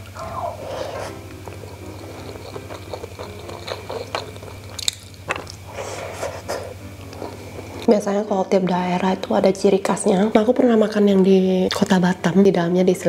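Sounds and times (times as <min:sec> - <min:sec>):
chewing sticky rice dumpling: 0:00.0 - 0:07.9.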